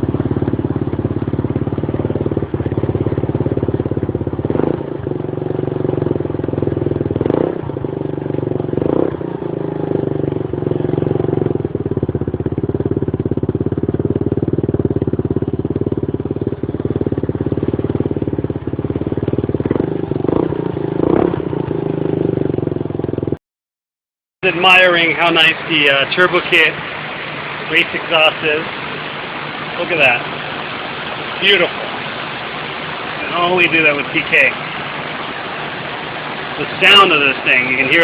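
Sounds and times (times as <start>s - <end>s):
scooter engine idling: 0.0s - 23.4s, 24.4s - 38.0s
scooter throttle blips: 0.0s - 23.4s.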